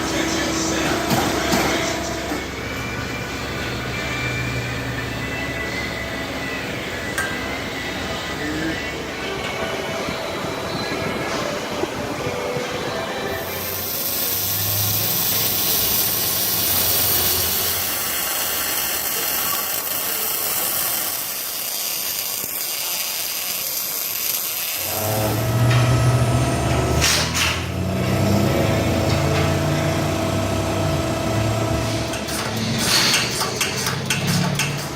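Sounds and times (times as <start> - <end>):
power tool hiss and whine: 0.0 - 34.7.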